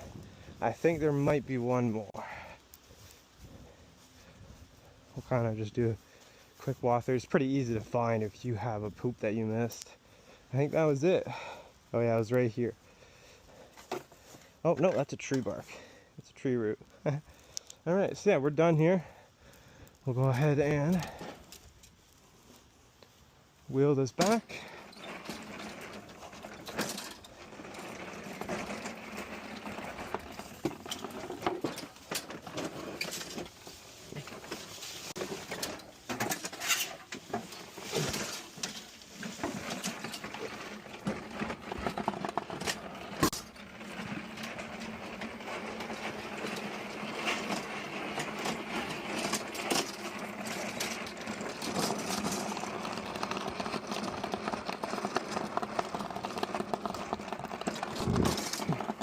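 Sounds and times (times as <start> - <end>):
push lawn mower rattling: 19.8 - 21.6, 23.8 - 59.0.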